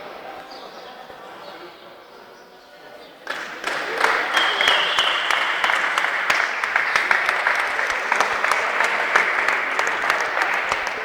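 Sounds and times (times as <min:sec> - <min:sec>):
crowd applauding: 0:03.3 - 0:11.0.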